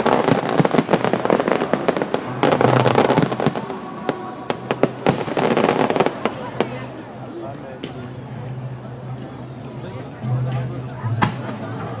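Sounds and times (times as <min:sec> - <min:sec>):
fireworks bangs: 0:00.0 - 0:07.0
fireworks crackling: 0:00.0 - 0:08.8.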